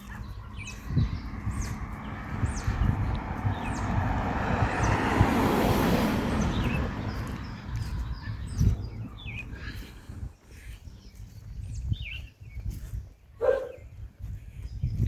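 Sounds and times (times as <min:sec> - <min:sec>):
small birds chirping: 0:00.0 - 0:15.0
vehicle passing by: 0:00.1 - 0:09.9.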